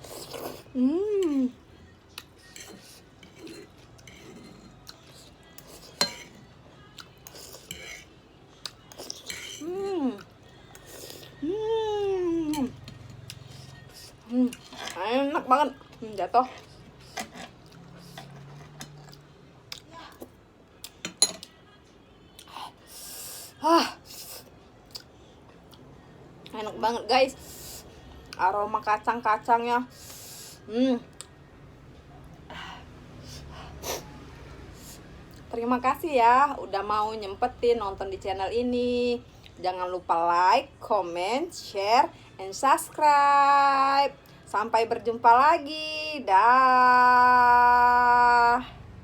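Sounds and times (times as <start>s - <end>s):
person humming: 0.7s - 1.6s, 11.4s - 12.7s.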